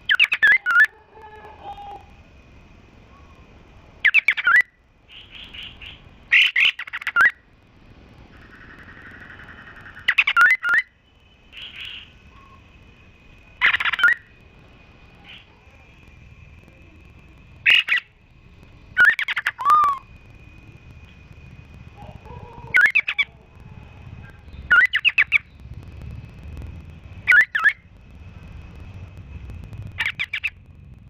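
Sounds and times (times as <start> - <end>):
songbird chirps and whistles: 0.0 - 2.1, 4.0 - 7.4, 8.4 - 12.7, 13.6 - 14.4, 17.6 - 18.2, 18.9 - 20.1, 21.9 - 23.4, 24.2 - 25.7, 27.2 - 27.8, 30.0 - 30.6
faint steady high whistle: 0.0 - 7.5, 8.3 - 25.8, 27.2 - 30.6.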